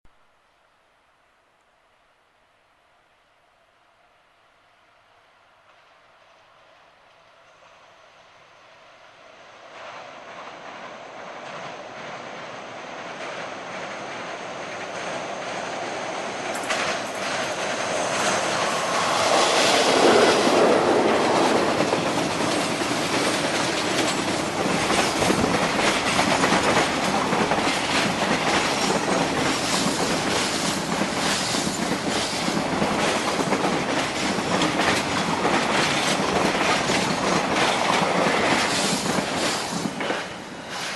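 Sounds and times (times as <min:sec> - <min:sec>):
train wagons rumbling past: 0:09.7 - 0:40.9
wheel clacks over rail joints: 0:16.5 - 0:40.3.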